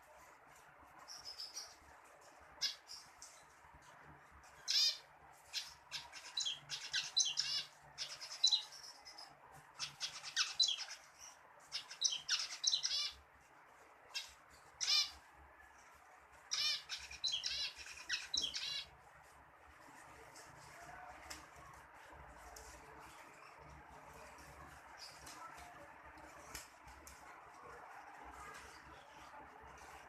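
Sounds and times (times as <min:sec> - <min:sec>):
finch singing: 0:04.6 - 0:13.2, 0:14.1 - 0:15.2, 0:16.5 - 0:18.9.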